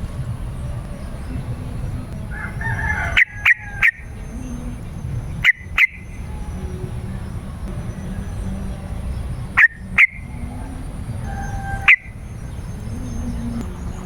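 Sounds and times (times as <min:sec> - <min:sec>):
bulbul singing: 0:00.0 - 0:14.0
low steady hum: 0:00.0 - 0:14.0.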